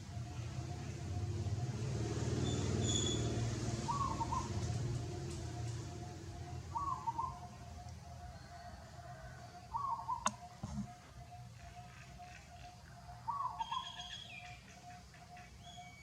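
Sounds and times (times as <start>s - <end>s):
vehicle engine passing: 0.0s - 7.7s
bird call: 2.5s - 4.8s, 6.5s - 7.7s, 8.5s - 16.0s.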